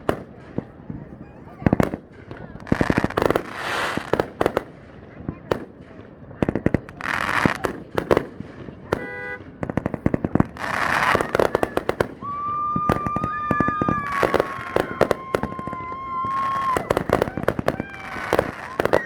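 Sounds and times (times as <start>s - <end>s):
fireworks crackling and popping: 0.0s - 19.0s
fireworks hissing bursts: 1.6s - 4.8s, 6.6s - 19.0s.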